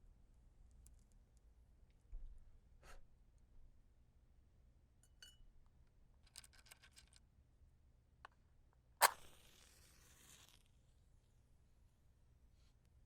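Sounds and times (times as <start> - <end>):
match head hissing: 9.0 - 10.7
match striking: 9.0 - 10.7.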